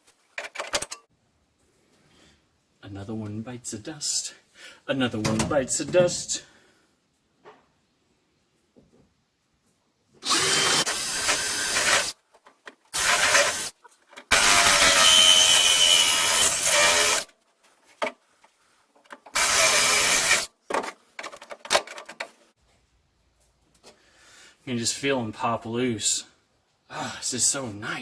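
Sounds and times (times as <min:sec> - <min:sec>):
power drill drilling sheet steel: 0:10.2 - 0:12.2, 0:13.0 - 0:13.7, 0:14.3 - 0:17.3, 0:19.4 - 0:20.5.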